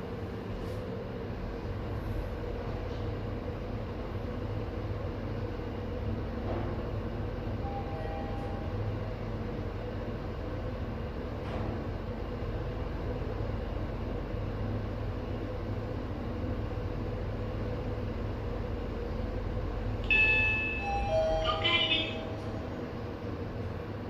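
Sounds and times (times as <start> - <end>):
elevator humming: 0.0 - 24.0
electronic arrival chime: 20.1 - 22.2.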